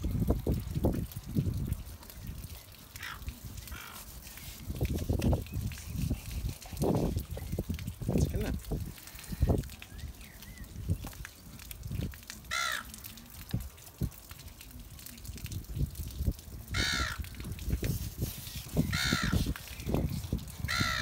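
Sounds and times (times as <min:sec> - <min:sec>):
bird cawing: 0:12.5 - 0:12.9, 0:16.7 - 0:17.2, 0:18.9 - 0:19.4, 0:20.6 - 0:21.0.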